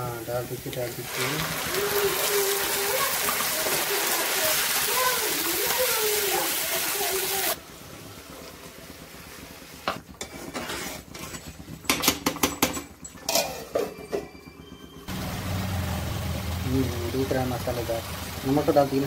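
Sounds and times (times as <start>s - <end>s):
steel utensils clinking: 11.1s - 14.4s.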